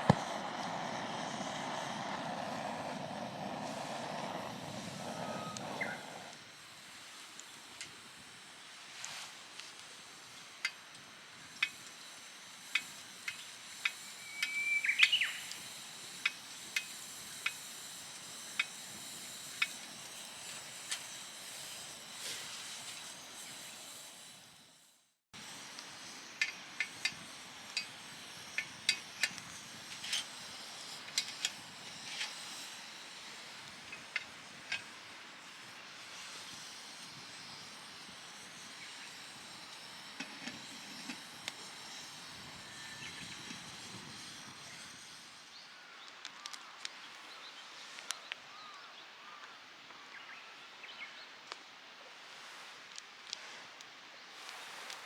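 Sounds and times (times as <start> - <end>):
wood fire crackling: 0.0 - 6.4
brief high whistle: 14.1 - 15.5.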